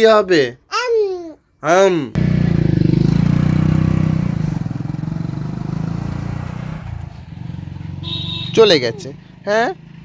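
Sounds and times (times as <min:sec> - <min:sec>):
motorcycle engine puttering: 0:02.2 - 0:09.2.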